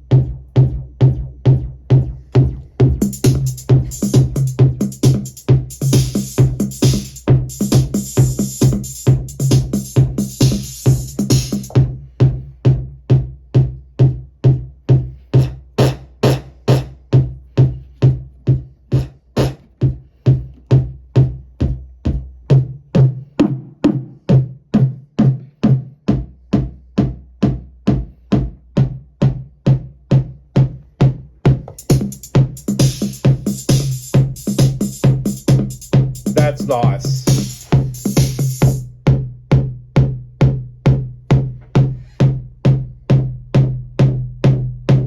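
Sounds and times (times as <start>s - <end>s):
synthesized kick drum: 0.0s - 45.0s
hissy hi-hat-like noise: 31.8s - 38.8s.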